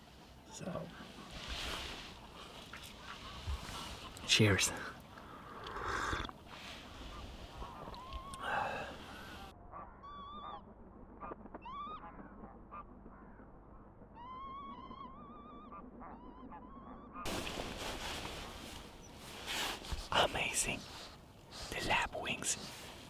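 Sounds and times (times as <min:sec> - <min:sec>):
wild birds calling: 0:00.0 - 0:23.0.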